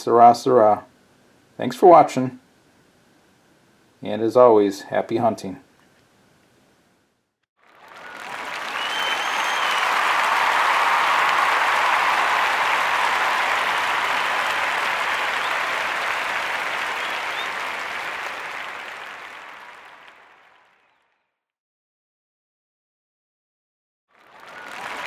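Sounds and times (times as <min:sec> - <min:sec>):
crowd applause: 0:07.6 - 0:21.0, 0:24.2 - 0:25.0.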